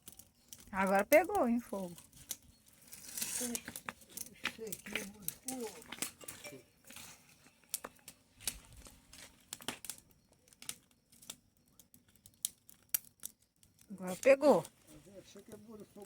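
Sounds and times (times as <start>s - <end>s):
bonfire crackling and popping: 0.0s - 16.0s.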